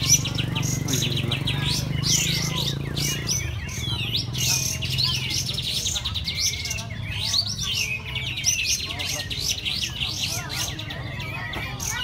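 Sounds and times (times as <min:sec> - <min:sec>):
songbirds chirping and trilling: 0:00.0 - 0:12.0.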